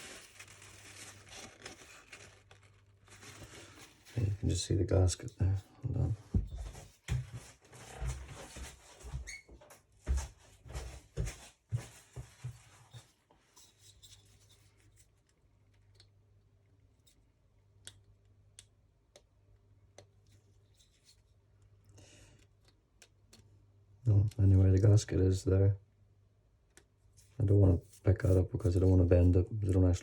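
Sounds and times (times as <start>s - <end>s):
faint low hum: 0.0s - 7.0s
rustling and scraping of parts: 0.0s - 15.8s, 20.2s - 21.4s.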